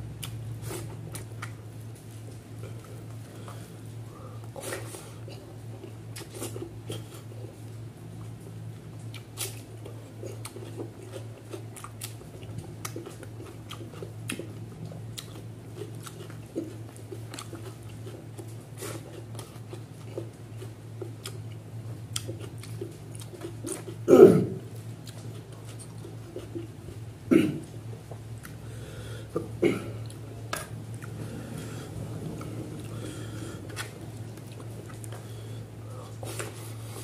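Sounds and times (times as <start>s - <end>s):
steady low hum: 0.0s - 37.0s
wet chewing with lip smacks: 0.2s - 3.6s, 4.4s - 24.1s, 24.7s - 28.6s, 32.3s - 35.3s.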